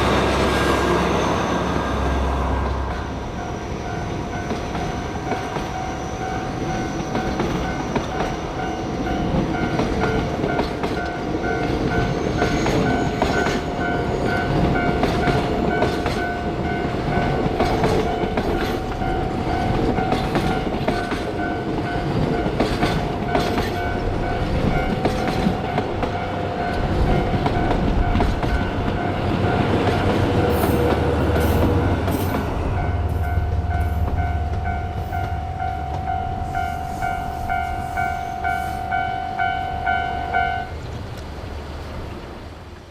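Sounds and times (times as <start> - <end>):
train wheels clicking on rail joints: 1.8 - 39.6
pulsing higher tone: 32.6 - 40.7
steady ringing tone: 32.7 - 40.7.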